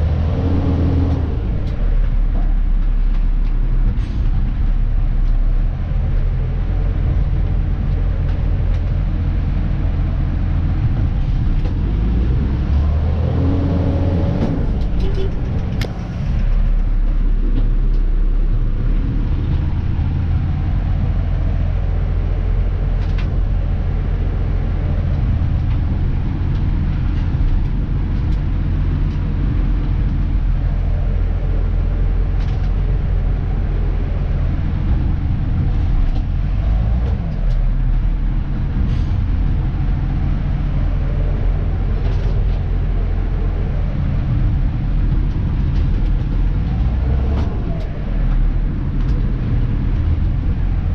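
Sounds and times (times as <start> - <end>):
truck diesel engine running: 0.0 - 50.9.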